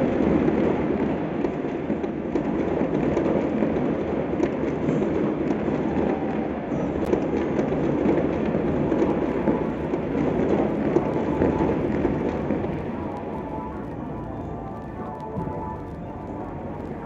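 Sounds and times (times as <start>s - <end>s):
distant fireworks crackling: 0.0s - 17.0s
firecracker sharp crack: 7.1s - 17.0s.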